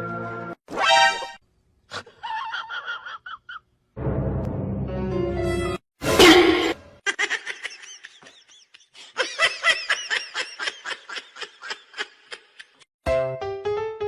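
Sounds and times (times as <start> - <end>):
rapid high-pitched laughter: 1.9 - 3.6
keyboard music: 13.0 - 14.0.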